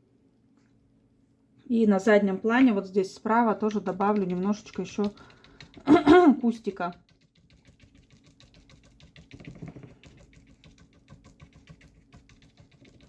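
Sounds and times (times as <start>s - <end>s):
paintbrush tapping on paper: 3.4s - 13.0s.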